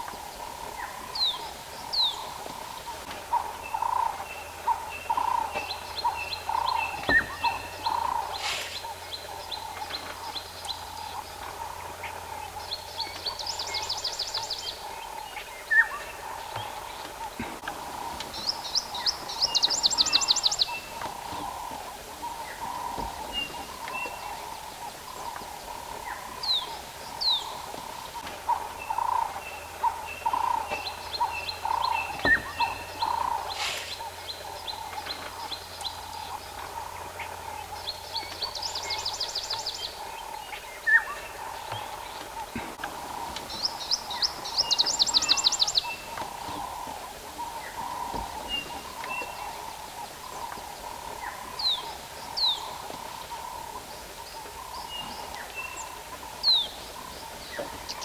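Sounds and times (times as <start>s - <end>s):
bird chirps: 0.0s - 58.0s
bird trilling: 28.5s - 35.6s.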